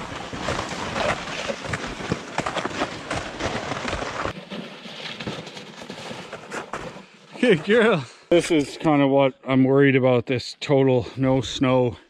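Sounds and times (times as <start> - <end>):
toboggans scraping over rocks: 0.0 - 8.0.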